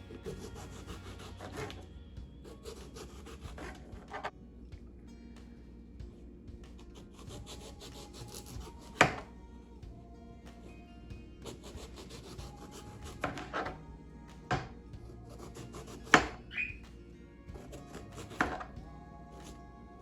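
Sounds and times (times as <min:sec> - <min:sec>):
knife scraping eggplant skin: 0:00.1 - 0:04.3, 0:06.8 - 0:09.3, 0:11.4 - 0:13.8, 0:15.3 - 0:16.4, 0:17.6 - 0:18.8.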